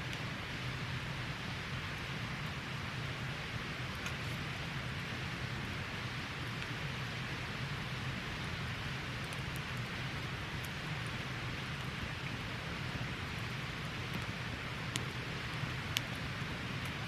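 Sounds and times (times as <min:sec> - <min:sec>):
campfire hissing and crackling: 0:00.0 - 0:17.0.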